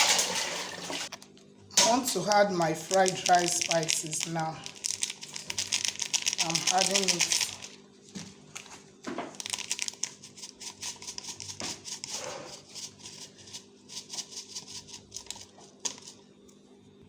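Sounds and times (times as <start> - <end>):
kitchen utensils clicking and tapping: 0.0 - 1.1
packaging being handled: 2.2 - 7.8, 9.4 - 11.5.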